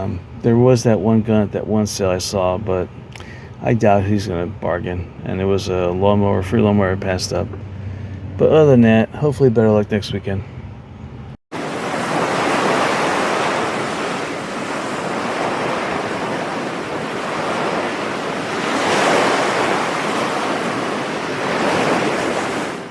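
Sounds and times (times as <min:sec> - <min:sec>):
ocean waves washing: 0:11.5 - 0:22.9.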